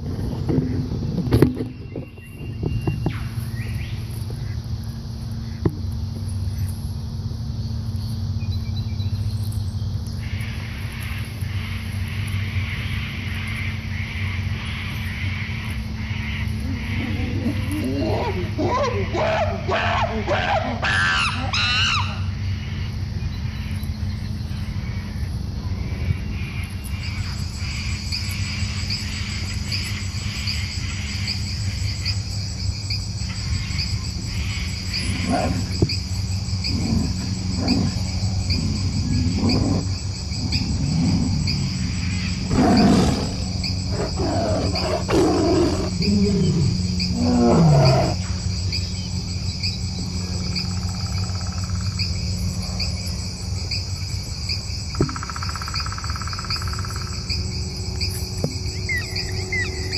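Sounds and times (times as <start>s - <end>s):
crickets trilling: 0.0s - 59.9s
low wavering gliding calls: 58.5s - 59.9s.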